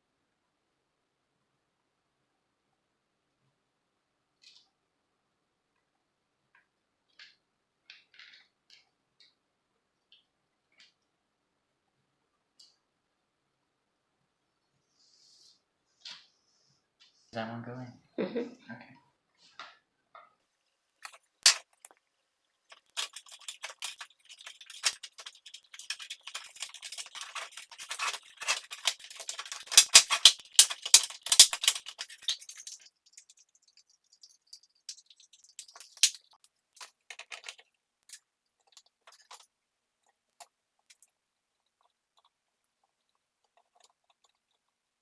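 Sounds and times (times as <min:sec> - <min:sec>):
small hard parts clicking and rattling: 0:21.0 - 0:21.9, 0:22.7 - 0:41.1, 0:43.4 - 0:44.7.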